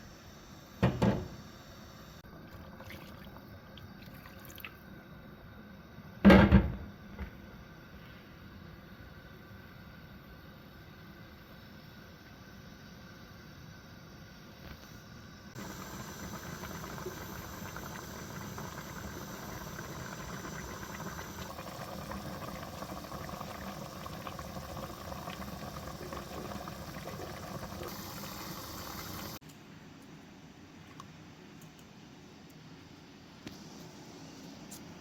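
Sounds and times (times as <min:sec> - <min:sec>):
pot boiling and bubbling: 0:00.0 - 0:05.5, 0:15.5 - 0:29.4.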